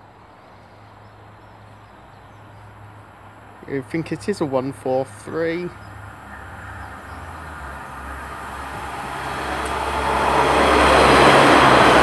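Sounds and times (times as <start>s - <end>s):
diesel train engine drone: 0.0s - 12.0s
train wheel noise: 6.3s - 12.0s.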